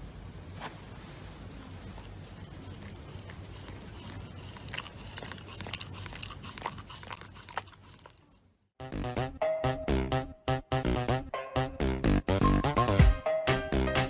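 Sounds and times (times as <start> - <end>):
dog chewing paper mask: 1.9 - 8.3.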